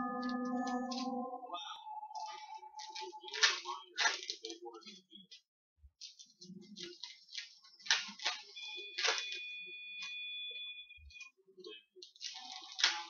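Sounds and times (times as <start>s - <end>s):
high two-note electronic tone: 0.0s - 3.2s
card packs crinkling and rustling: 2.8s - 5.0s, 6.0s - 9.4s, 12.0s - 13.0s.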